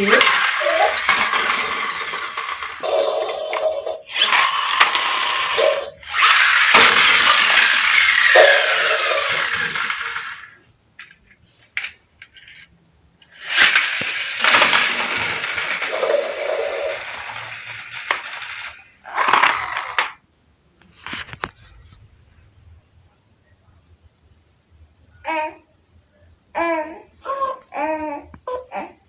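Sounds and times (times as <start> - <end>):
small hard objects rattling: 0.0 - 2.9, 6.1 - 10.6, 13.4 - 20.2.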